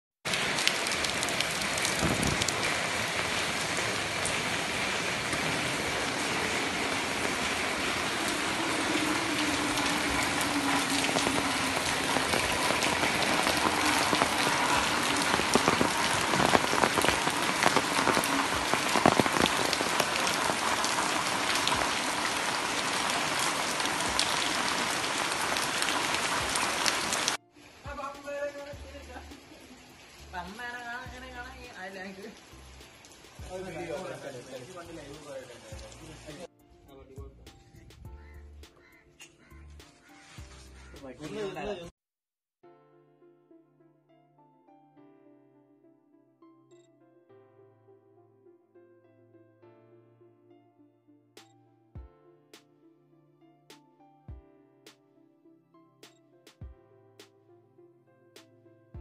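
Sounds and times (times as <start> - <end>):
heavy rain on paving: 0.2 - 36.5, 40.1 - 41.7.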